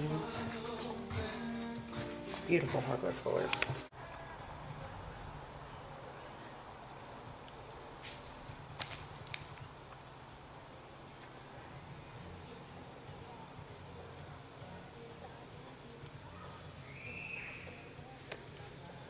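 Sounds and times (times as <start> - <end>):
crickets chirping: 3.9 - 19.0.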